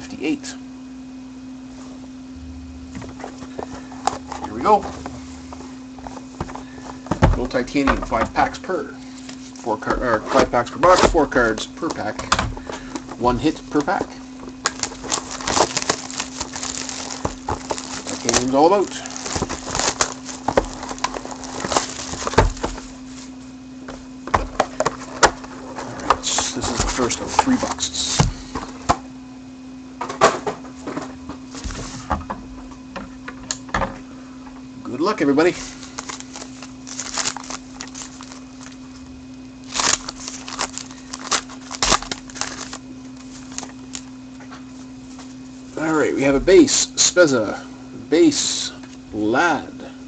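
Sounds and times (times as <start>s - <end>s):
steady electrical hum: 0.0s - 50.0s
packaging crinkling and rustling: 3.0s - 23.4s, 24.4s - 28.8s, 35.4s - 44.2s.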